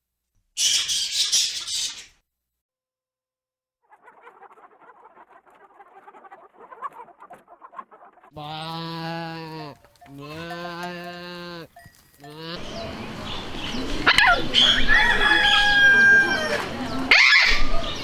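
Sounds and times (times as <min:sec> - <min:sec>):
soft clucking-like calls: 0:03.9 - 0:18.0
animal bleating: 0:08.3 - 0:13.5.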